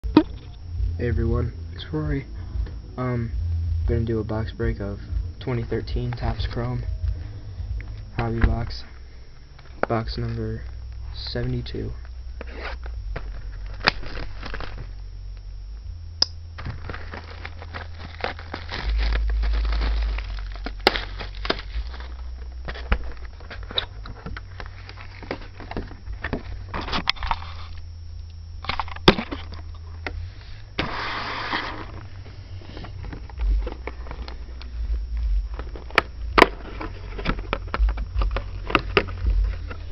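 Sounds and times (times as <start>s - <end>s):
plastic wrap crackling and rustling: 12.4s - 15.0s, 16.6s - 27.8s, 30.7s - 39.9s.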